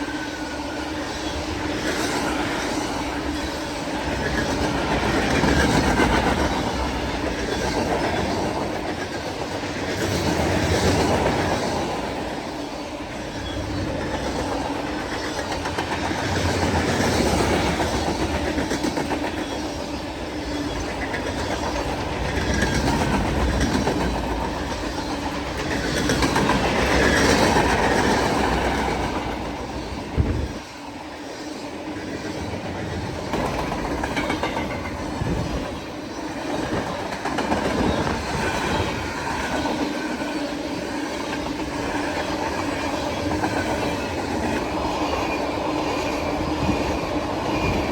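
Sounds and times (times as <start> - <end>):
freight train wheels clicking: 0.0 - 47.9.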